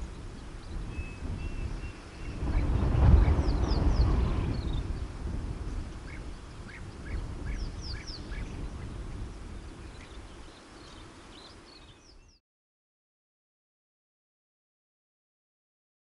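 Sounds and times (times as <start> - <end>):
birds calling repeated notes: 5.7 - 12.4
high falling bird chirps: 5.7 - 12.4.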